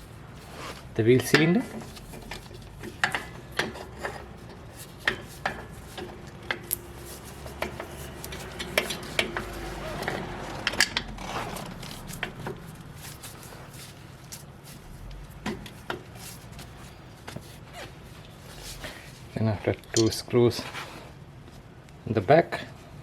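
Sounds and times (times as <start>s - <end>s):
metal tools clinking and tapping: 1.2s - 11.1s, 19.9s - 20.2s.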